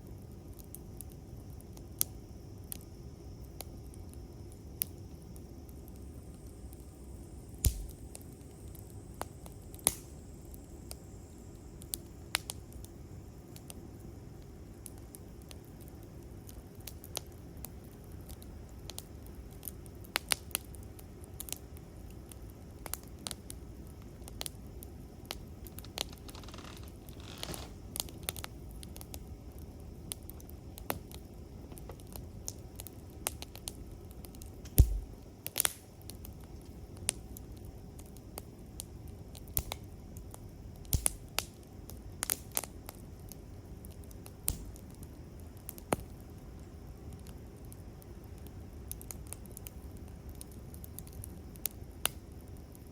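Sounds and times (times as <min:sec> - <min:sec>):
low rumble of burning wood: 0:00.0 - 0:52.9
campfire crackling: 0:00.1 - 0:52.9
fire pops and snaps: 0:00.5 - 0:52.9
brief hiss: 0:25.8 - 0:27.9
thumping pop: 0:34.7 - 0:35.1.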